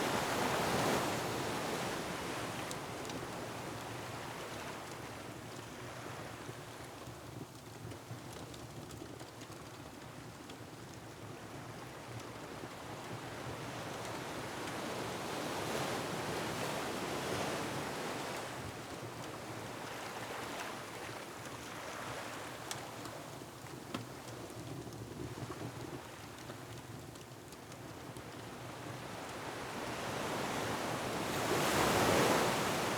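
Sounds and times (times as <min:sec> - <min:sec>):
wind: 0:00.0 - 0:32.9
faint wood fire crackles: 0:01.6 - 0:15.9, 0:16.5 - 0:32.9
ocean surf: 0:30.1 - 0:32.9.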